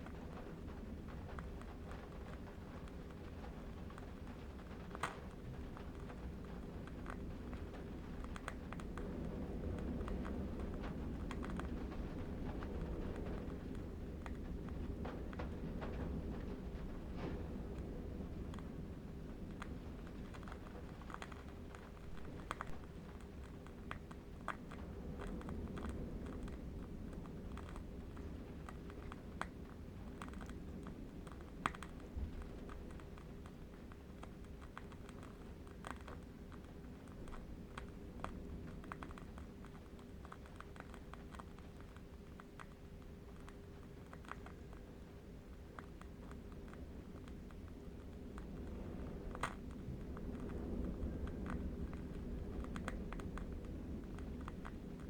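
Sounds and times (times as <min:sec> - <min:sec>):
distant wind rumble: 0:00.1 - 0:55.0
candle wick crackling: 0:21.0 - 0:29.7.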